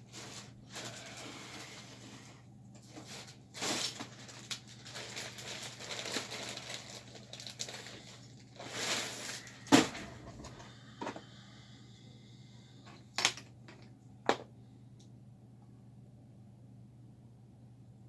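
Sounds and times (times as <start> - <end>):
hands rustling wires: 0.0 - 11.3
steady low hum: 0.0 - 18.0.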